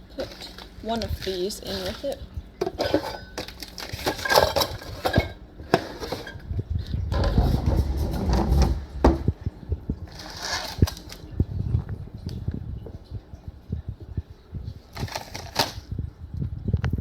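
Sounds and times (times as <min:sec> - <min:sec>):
packets rustling: 0:00.0 - 0:06.3, 0:10.1 - 0:11.4, 0:14.9 - 0:15.9
small items clicking and clinking: 0:00.1 - 0:05.3.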